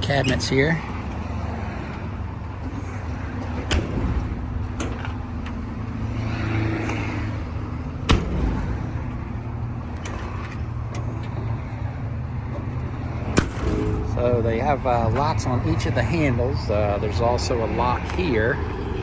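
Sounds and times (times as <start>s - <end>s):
low vehicle rumble: 0.0s - 19.0s
metal latches clicking: 3.5s - 5.8s.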